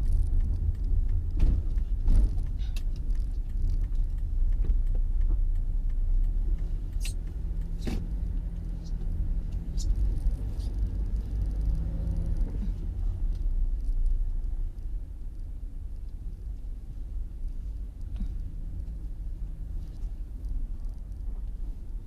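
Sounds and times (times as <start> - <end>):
faint clicks: 0.0 - 12.5
car low rumble: 0.0 - 22.0.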